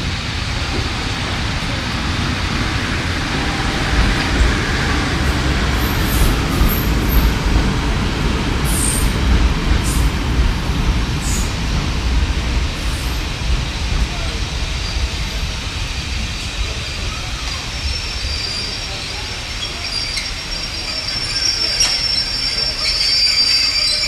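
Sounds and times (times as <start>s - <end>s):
train wheels rumbling on rail: 0.0s - 24.0s
short high squeaks: 19.6s - 24.0s.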